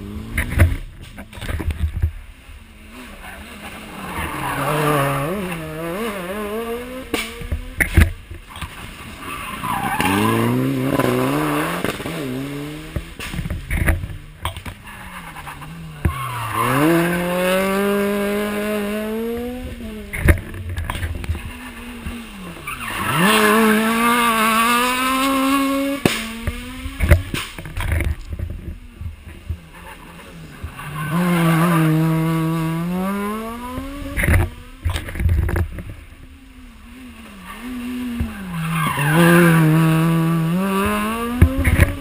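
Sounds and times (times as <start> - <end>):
rally car engines revving: 0.0 - 42.0.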